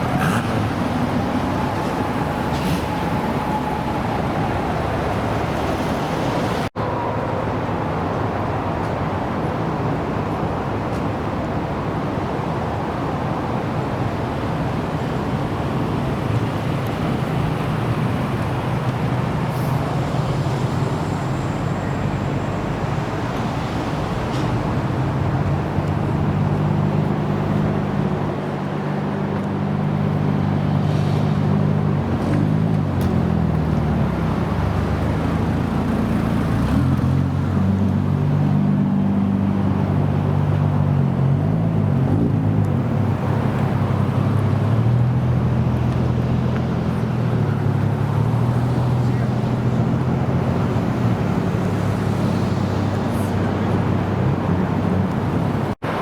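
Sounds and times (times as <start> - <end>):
car engines idling: 0.0 - 6.8, 42.6 - 56.0.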